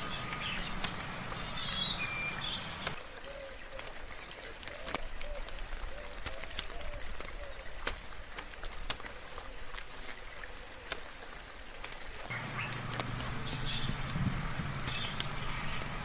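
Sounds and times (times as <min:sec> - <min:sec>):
birds chirping: 0:00.0 - 0:11.0, 0:12.2 - 0:16.0
light rain: 0:00.0 - 0:16.0
sharp water drips: 0:00.0 - 0:16.0.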